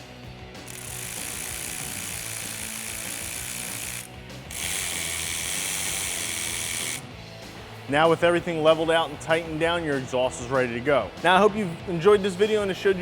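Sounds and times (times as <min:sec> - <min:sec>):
quiet background music: 0:00.0 - 0:13.0
ratchet clicking rapidly: 0:00.6 - 0:07.0.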